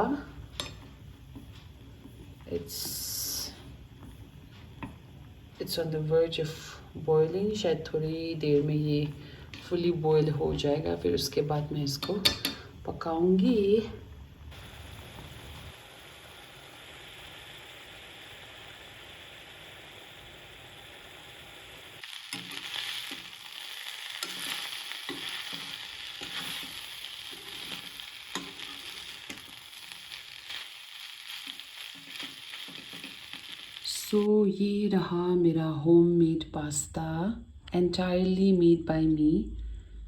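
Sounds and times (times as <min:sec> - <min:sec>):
food sizzling in a pan: 0:00.0 - 0:13.9, 0:14.5 - 0:34.3
utensil scraping a pan: 0:24.0 - 0:30.7.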